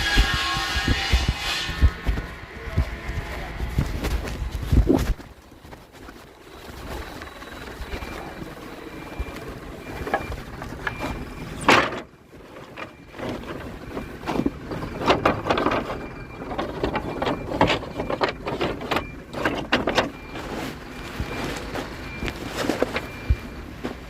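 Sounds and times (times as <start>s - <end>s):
wood and machinery knocking: 0.0s - 5.3s, 9.2s - 24.0s
faint steady whine: 0.0s - 24.0s
clattering: 10.0s - 24.0s.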